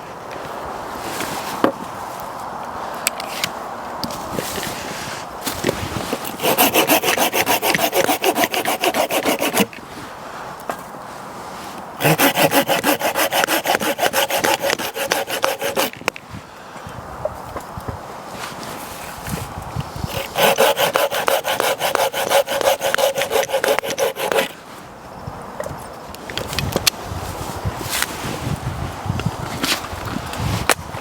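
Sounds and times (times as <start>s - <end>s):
hand saw cutting wood: 5.0s - 9.8s, 12.0s - 16.2s, 20.0s - 24.6s.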